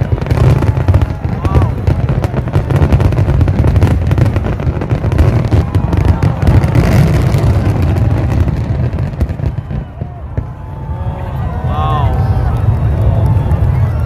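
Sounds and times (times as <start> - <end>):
fireworks booming: 0.0 - 10.7
fireworks crackling pops: 0.0 - 10.7.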